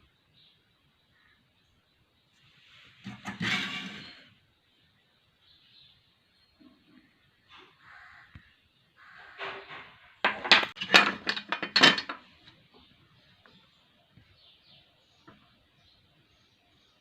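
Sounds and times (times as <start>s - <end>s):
small hard objects clinking: 10.2s - 12.3s.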